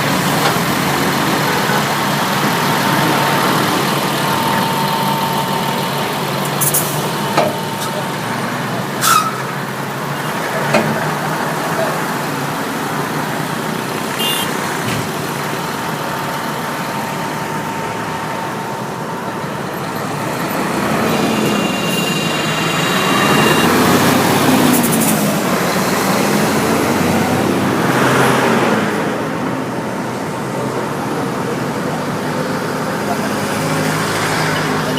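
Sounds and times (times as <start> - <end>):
loud engine rising and falling: 0.0 - 34.9
road traffic: 0.0 - 34.9.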